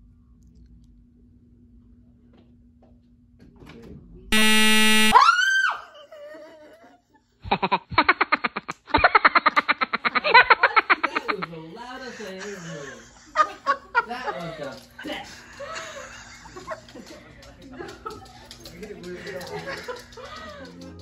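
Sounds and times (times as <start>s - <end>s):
loud buzzer tone: 4.3s - 5.2s
rapid rhythmic laughter: 6.1s - 21.0s.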